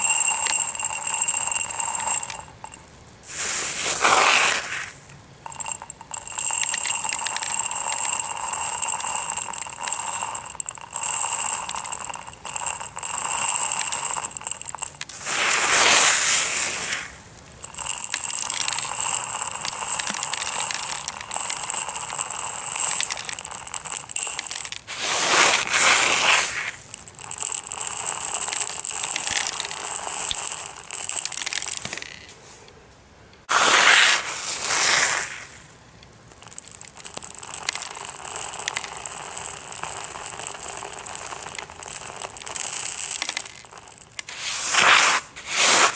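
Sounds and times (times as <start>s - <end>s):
gravel rattling and scraping: 0.0s - 32.6s.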